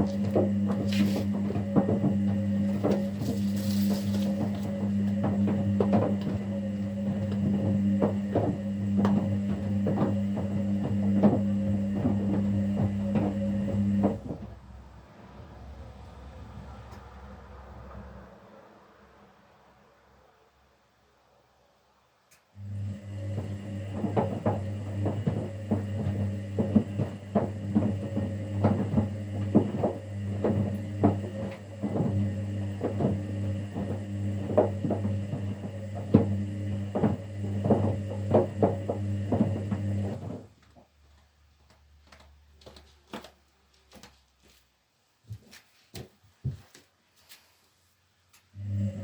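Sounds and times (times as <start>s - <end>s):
laundry splashing and knocking: 0.0s - 14.6s, 23.4s - 41.0s
washing machine motor hum: 0.0s - 18.0s, 22.6s - 43.3s, 48.5s - 49.0s.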